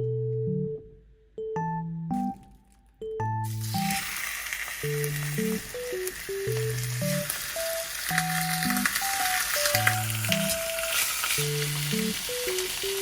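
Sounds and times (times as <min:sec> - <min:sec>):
food sizzling in hot oil: 0:03.4 - 0:13.0.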